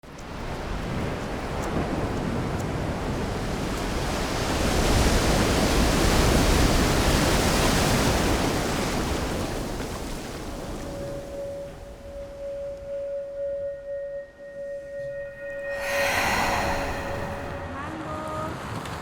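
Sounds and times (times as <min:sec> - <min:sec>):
steady rushing noise: 0:15.3 - 0:17.8.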